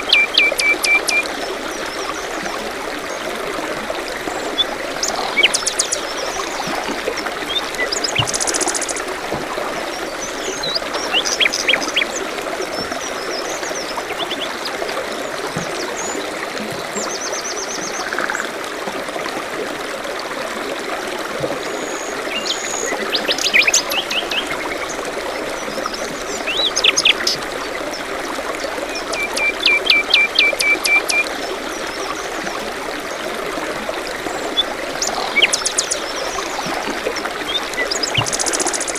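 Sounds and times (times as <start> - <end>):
songbirds chirping: 0.0 - 3.3, 4.0 - 18.5, 34.4 - 38.9
stream trickling: 0.0 - 38.9.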